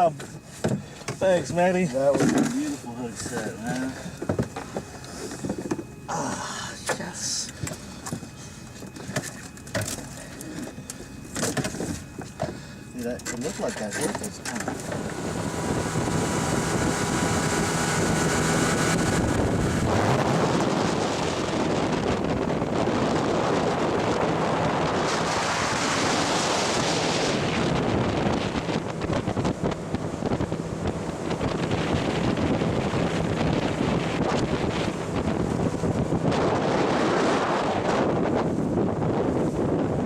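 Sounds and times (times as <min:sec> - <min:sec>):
faint steady tones: 0:00.0 - 0:36.7
wind buffeting microphone: 0:14.1 - 0:40.0.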